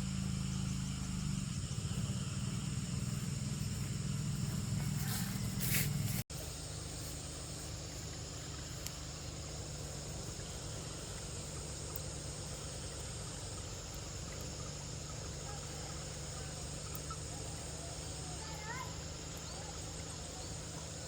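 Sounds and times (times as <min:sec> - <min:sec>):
even rushing hiss: 0:00.0 - 0:21.0
faint ticks: 0:08.0 - 0:09.1, 0:09.8 - 0:17.4.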